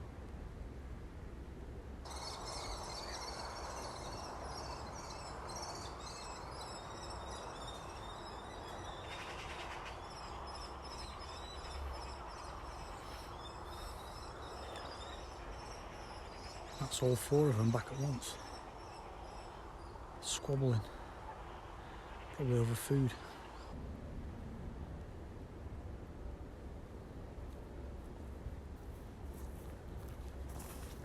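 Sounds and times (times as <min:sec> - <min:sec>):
young kestrels calling: 0:02.1 - 0:23.7.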